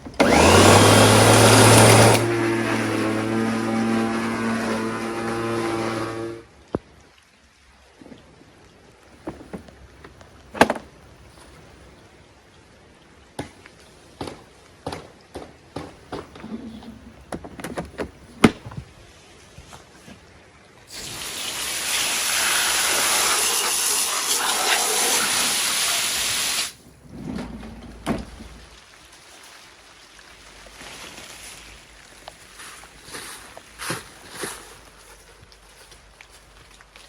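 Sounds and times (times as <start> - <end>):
water rushing from a tap: 20.9 - 26.8.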